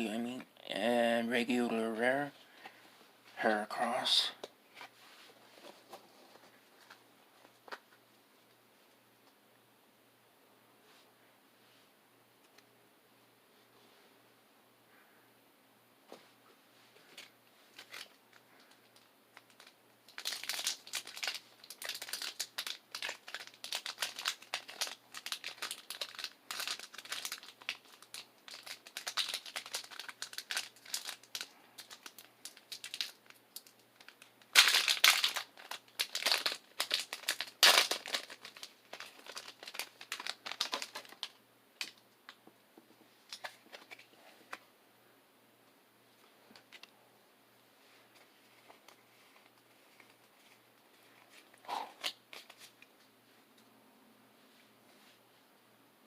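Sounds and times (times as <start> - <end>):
foil wrapper crinkling: 17.2 - 42.0.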